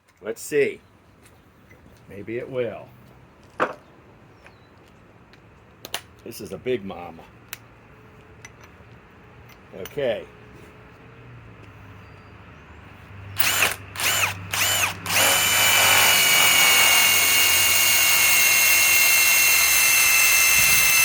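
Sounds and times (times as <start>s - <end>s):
impact wrench whining: 13.4s - 21.0s.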